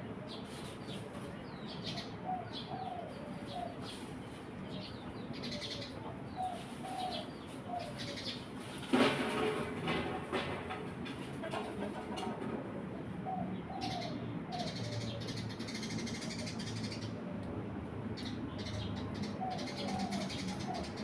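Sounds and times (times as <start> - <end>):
sparrows chirping: 0.1 - 8.8, 13.2 - 17.2, 18.1 - 21.0.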